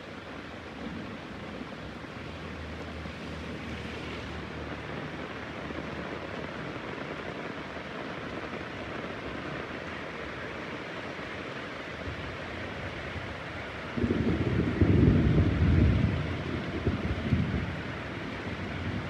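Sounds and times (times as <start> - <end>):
heavy rain falling: 0.0 - 19.0
low rumble of thunder: 13.0 - 19.0.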